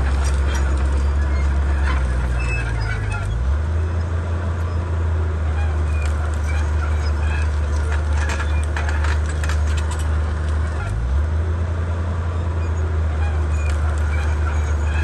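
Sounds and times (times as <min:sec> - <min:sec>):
clanks and cracks: 0:00.0 - 0:03.3, 0:06.0 - 0:10.9
bulldozer diesel engine: 0:00.0 - 0:15.0.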